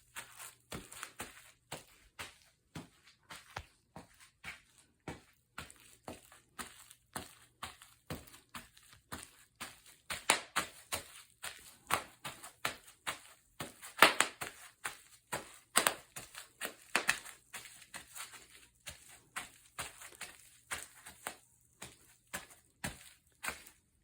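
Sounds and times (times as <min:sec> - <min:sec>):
bubble wrap popping underfoot: 0:08.6 - 0:23.8.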